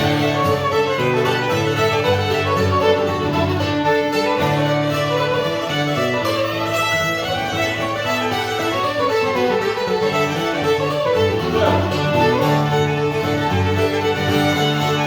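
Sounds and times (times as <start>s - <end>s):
fiddle melody: 0.0s - 15.0s
string band playing: 0.0s - 15.0s.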